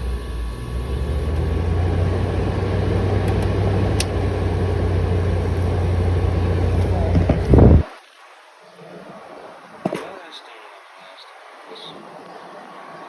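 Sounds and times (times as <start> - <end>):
air conditioner running: 0.0 - 7.9.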